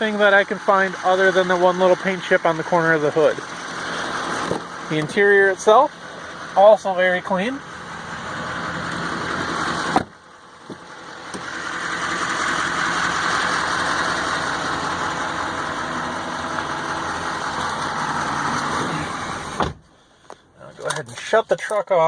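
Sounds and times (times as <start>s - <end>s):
diesel engine idling: 0.0s - 21.4s
sharp thump: 9.9s - 11.5s.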